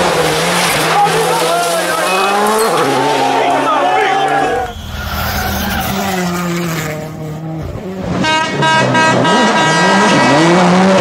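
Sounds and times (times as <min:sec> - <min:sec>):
rally car engine revving: 0:00.0 - 0:11.0
loud steady horn-like tone: 0:04.6 - 0:06.0, 0:08.1 - 0:10.6.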